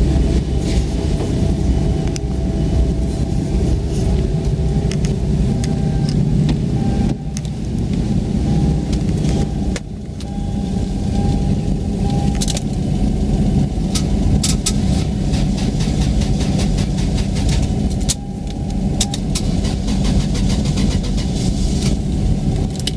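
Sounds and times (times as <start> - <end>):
car engine running: 18.0 - 19.4.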